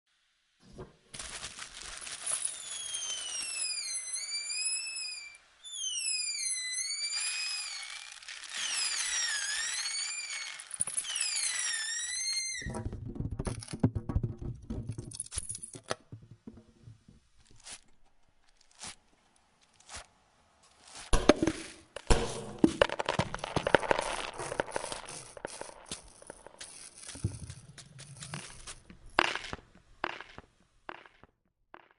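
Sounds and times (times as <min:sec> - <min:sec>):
crackling and crumpling with clicks: 0:00.7 - 0:04.3, 0:07.6 - 0:11.2, 0:17.4 - 0:31.9.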